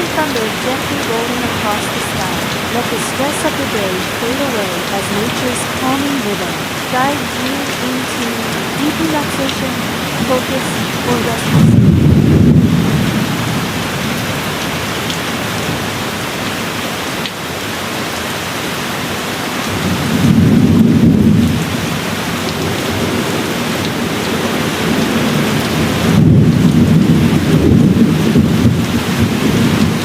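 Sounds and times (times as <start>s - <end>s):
steady rain falling: 0.0s - 30.0s
distant thunder rumbling: 8.3s - 14.4s.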